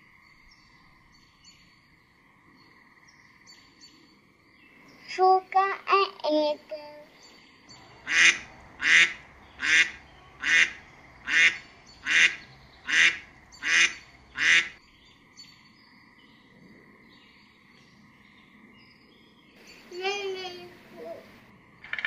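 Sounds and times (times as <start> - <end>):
duck quacking: 8.0 - 14.8.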